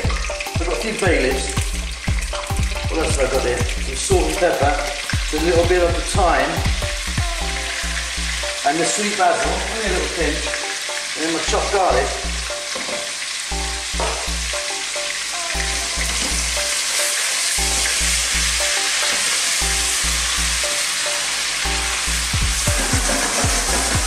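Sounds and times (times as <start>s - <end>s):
background music with bass line: 0.0s - 8.7s, 21.6s - 24.0s
chicken sizzling in hot oil: 0.0s - 24.0s.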